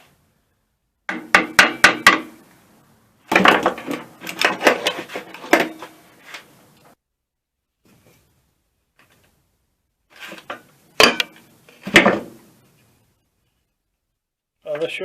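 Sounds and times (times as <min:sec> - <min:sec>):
hammer striking metal: 0:01.1 - 0:02.4
metal knocking and clatter: 0:03.3 - 0:05.9.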